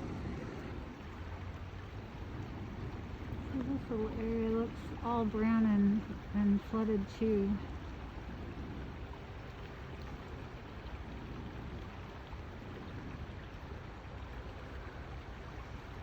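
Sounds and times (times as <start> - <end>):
low rumble: 0.0 - 6.6
river rushing: 0.0 - 11.1.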